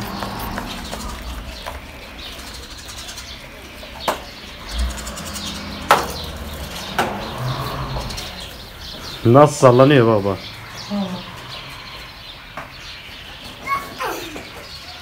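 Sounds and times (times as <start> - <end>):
birds chirping: 0.0 - 15.0
sharp knocks: 5.7 - 7.4.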